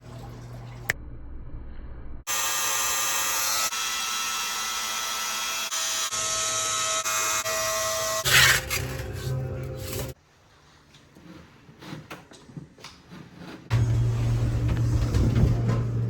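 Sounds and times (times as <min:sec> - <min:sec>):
small electric motor whirring: 0:02.3 - 0:09.0.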